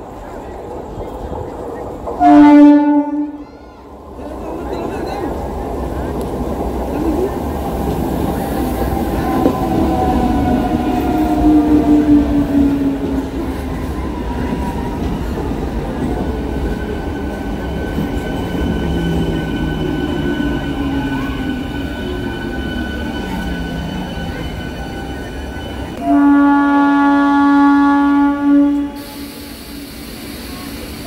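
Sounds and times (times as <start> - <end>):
train wheels and motors rumbling: 0.0 - 26.2
train horn: 2.2 - 3.4, 10.2 - 13.3, 26.0 - 29.4.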